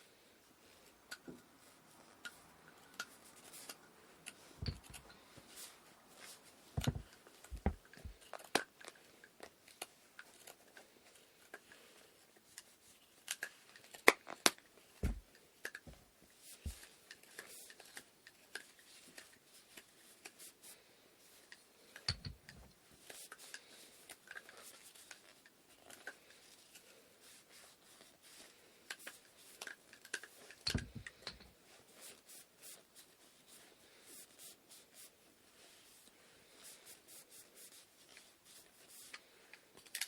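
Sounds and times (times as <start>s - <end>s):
wooden loom parts clicking: 4.2s - 5.2s, 22.0s - 22.8s
soft low thumps: 4.6s - 5.1s, 6.8s - 8.2s, 15.0s - 15.3s, 30.8s - 31.1s.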